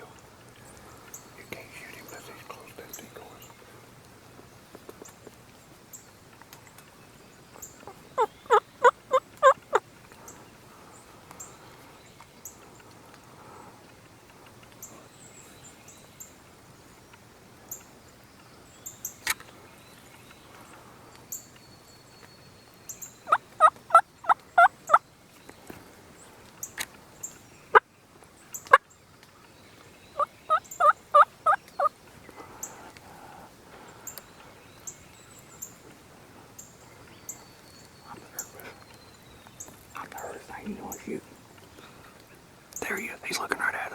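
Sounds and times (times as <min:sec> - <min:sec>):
turkey gobbling: 0:07.8 - 0:09.8, 0:23.3 - 0:25.0, 0:30.2 - 0:31.9.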